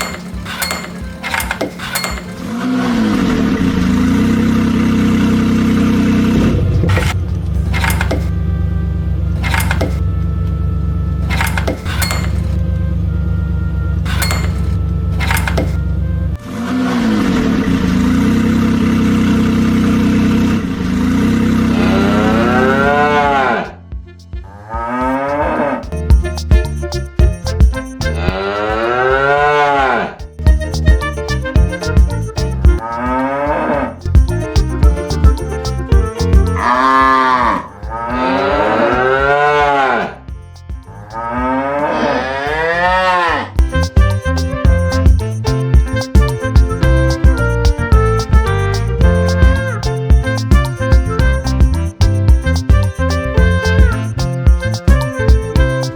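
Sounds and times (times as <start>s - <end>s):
music with a steady beat: 23.2s - 28.8s, 29.8s - 41.6s, 42.5s - 55.9s.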